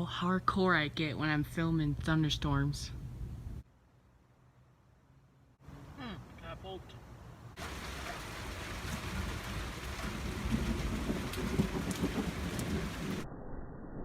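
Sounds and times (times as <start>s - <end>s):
rain falling: 7.5s - 13.2s
rolling thunder: 7.6s - 13.3s.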